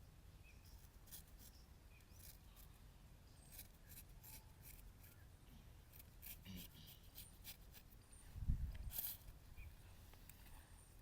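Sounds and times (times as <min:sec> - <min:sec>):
low steady hum: 0:00.0 - 0:11.0
razor scraping over stubble: 0:00.7 - 0:02.8, 0:03.4 - 0:05.2, 0:05.9 - 0:08.0, 0:08.8 - 0:09.3.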